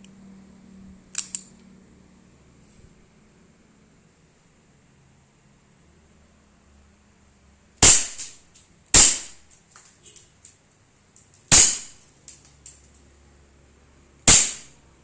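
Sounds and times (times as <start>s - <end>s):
airsoft pistol shots: 7.8s - 8.4s, 9.0s - 9.4s, 11.5s - 12.0s, 14.3s - 14.7s.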